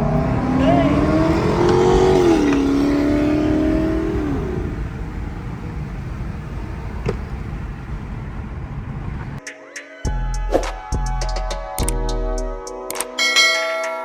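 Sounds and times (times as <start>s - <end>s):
car driving off: 0.0s - 9.4s
low rumble: 2.7s - 9.4s.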